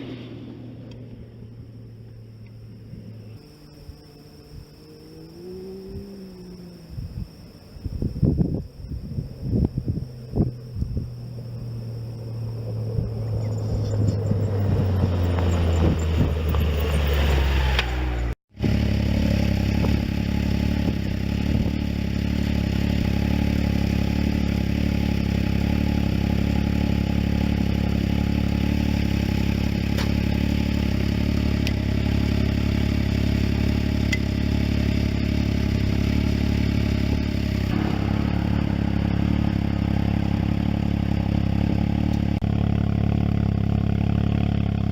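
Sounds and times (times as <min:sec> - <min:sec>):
engine revs falling then idling: 0:09.4 - 0:44.9.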